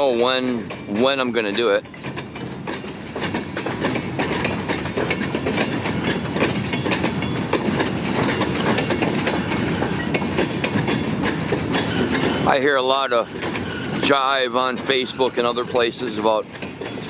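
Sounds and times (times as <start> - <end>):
sharp clicks and clacks: 0.0 - 17.0
steel wheels rumbling on rails: 0.0 - 17.0.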